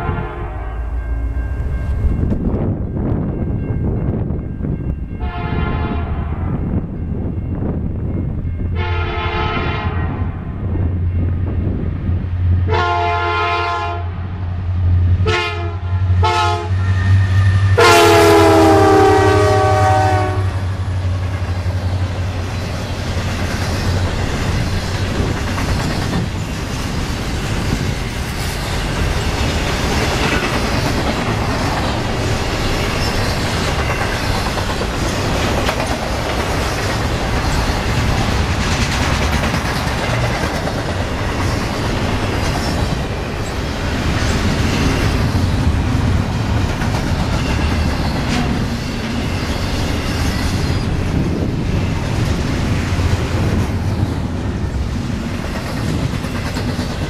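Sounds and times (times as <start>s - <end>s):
locomotive horn blasts: 0.0s - 1.0s, 5.2s - 6.4s, 8.8s - 10.2s, 12.7s - 14.2s, 15.2s - 20.7s
locomotive engines droning: 0.0s - 57.0s
freight cars rumbling and clacking: 20.7s - 57.0s.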